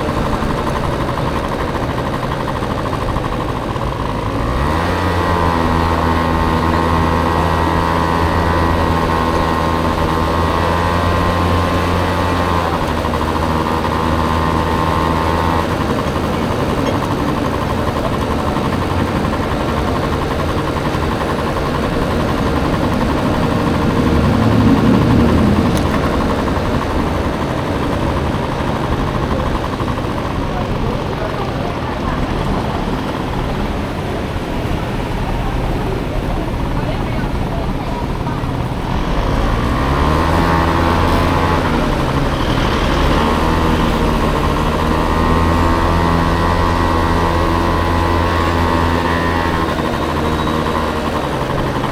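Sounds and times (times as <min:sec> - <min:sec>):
road noise: 0:00.0 - 0:51.9
scooter engine running: 0:00.0 - 0:51.9.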